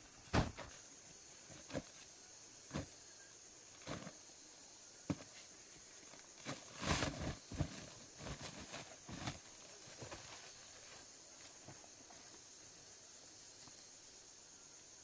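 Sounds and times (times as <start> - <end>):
rustling scrape: 6.4 - 11.1.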